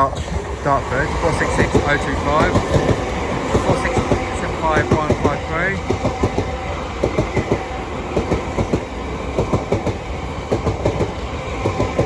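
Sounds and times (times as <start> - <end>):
train passing at speed: 0.0 - 12.0
train wheels clicking over joints: 0.0 - 12.0.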